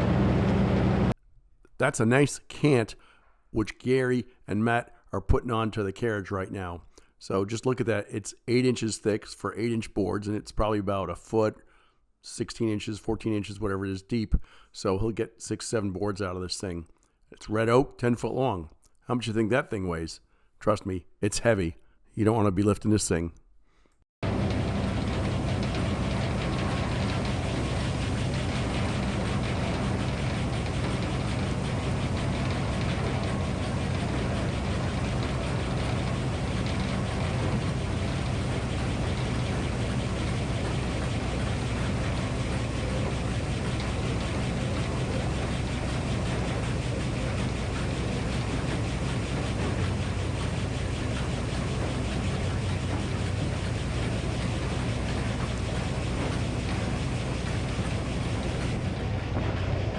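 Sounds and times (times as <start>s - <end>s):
engine running: 0.0s - 1.2s, 24.2s - 59.9s.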